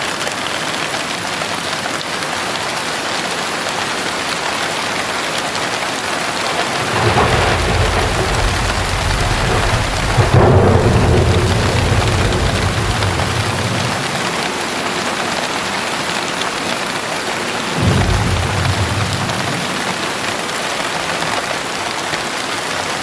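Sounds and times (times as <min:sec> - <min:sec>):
heavy rain pouring: 0:00.0 - 0:23.0
thunder rumbling: 0:05.4 - 0:21.8.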